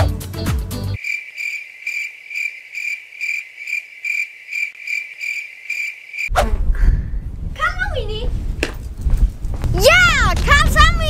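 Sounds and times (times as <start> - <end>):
crickets chirping: 1.0 - 6.3.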